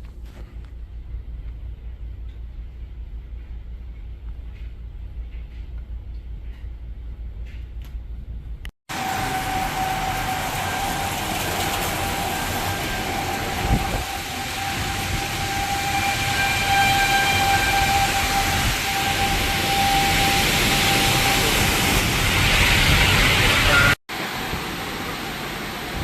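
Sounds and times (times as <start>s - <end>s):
strong wind: 0.6s - 26.0s
warning siren tone: 8.9s - 24.0s
rain: 8.9s - 26.0s.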